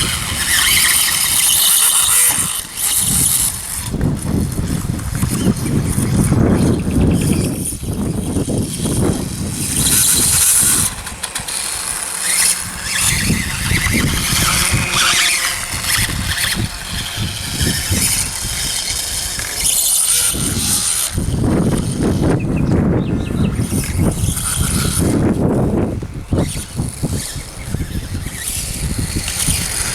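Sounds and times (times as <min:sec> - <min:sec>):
rc dirt bike motor whining: 0:00.0 - 0:29.9
tyre and ground noise: 0:00.0 - 0:29.9.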